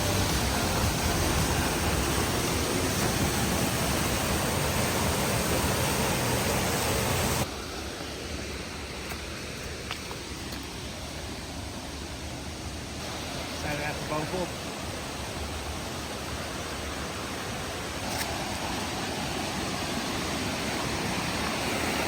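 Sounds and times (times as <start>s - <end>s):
waterfall rushing: 0.0s - 8.8s, 10.1s - 22.0s.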